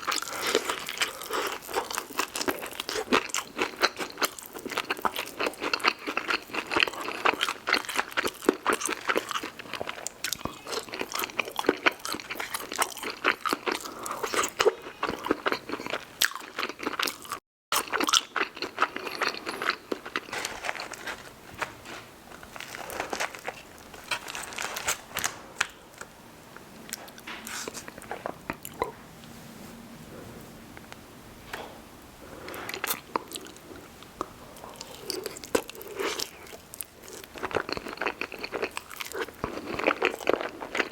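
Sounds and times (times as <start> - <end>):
crunchy chewing: 0.0 - 26.1, 32.4 - 40.9.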